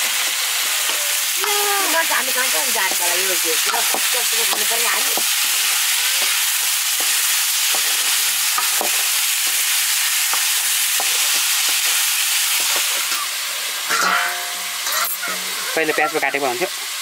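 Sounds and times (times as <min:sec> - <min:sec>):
chicken sizzling in hot oil: 0:00.0 - 0:17.0
metal ladle scraping wok: 0:02.5 - 0:15.8.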